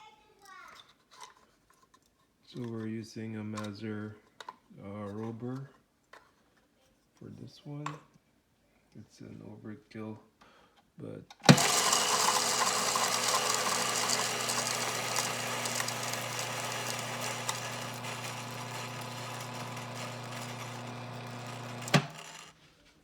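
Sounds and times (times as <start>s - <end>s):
coffee grinder motor hum: 11.4s - 22.5s
beans crackling in grinder: 11.5s - 22.5s.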